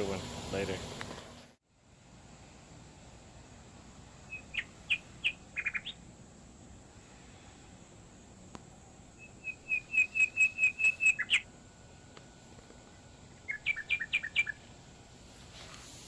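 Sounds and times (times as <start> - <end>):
bird chirping: 4.1 - 6.8, 8.7 - 11.5, 12.8 - 14.8.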